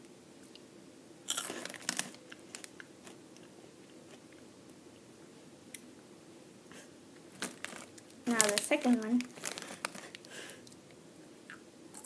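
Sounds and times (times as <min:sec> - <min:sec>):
crunchy snack being chewed: 0:01.3 - 0:03.5, 0:07.4 - 0:10.3.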